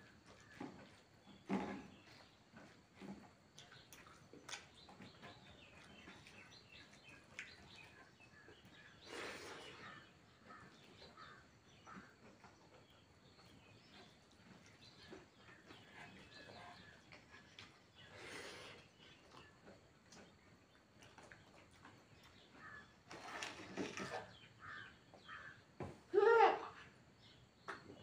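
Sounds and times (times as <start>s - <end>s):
chewing and mouth clicks: 5.8s - 8.1s, 19.2s - 22.4s.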